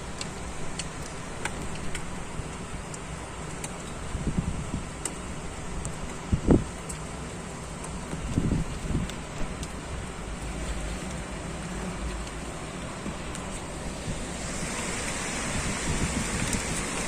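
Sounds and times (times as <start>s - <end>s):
gusting wind: 3.9s - 6.7s, 8.1s - 17.0s
wind buffets on microphone: 4.1s - 5.0s, 5.6s - 6.7s, 8.2s - 12.3s, 12.9s - 17.0s
heavy rain hissing: 9.9s - 17.0s.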